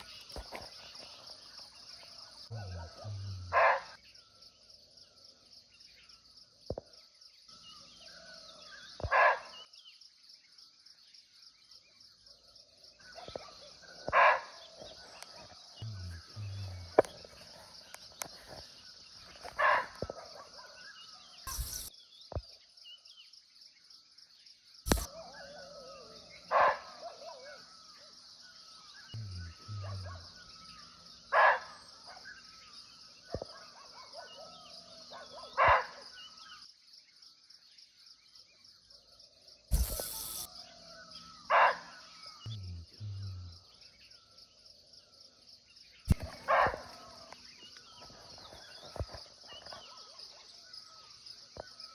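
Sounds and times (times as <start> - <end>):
high drone of insects: 0.0 - 51.9
barking deer barks: 2.5 - 4.0, 9.0 - 9.6, 13.2 - 14.6, 19.5 - 20.8, 25.0 - 27.7, 29.2 - 30.2, 31.3 - 32.4, 33.3 - 36.1, 41.5 - 42.0, 46.1 - 47.3.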